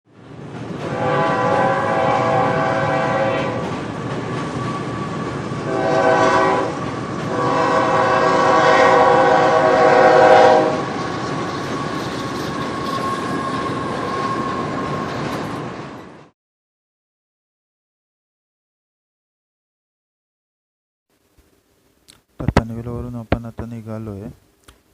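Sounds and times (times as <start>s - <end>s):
train rumbling on rails: 0.1s - 16.3s
train horn blasts: 0.8s - 3.7s, 5.6s - 11.1s.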